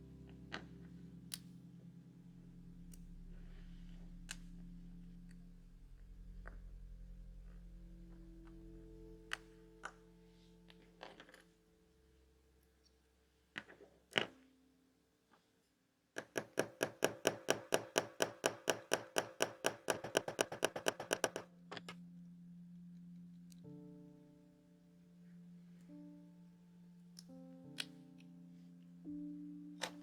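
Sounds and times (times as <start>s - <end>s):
soft background music: 0.0s - 15.3s, 16.2s - 30.0s
wristwatch ticking: 16.2s - 21.5s.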